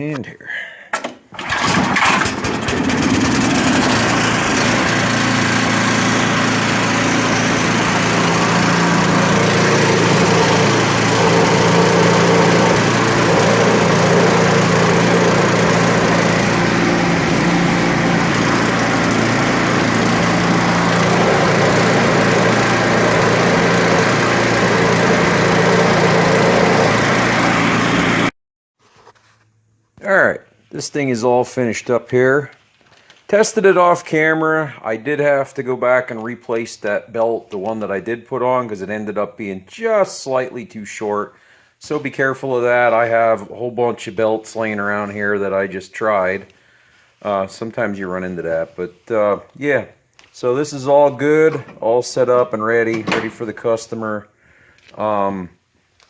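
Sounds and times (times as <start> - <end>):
snow blower engine running: 1.3 - 28.3, 51.0 - 52.2, 52.8 - 53.6.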